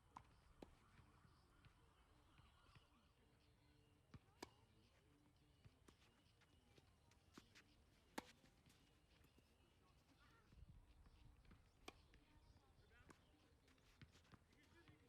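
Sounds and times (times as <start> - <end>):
tennis ball hits: 7.4 - 8.4.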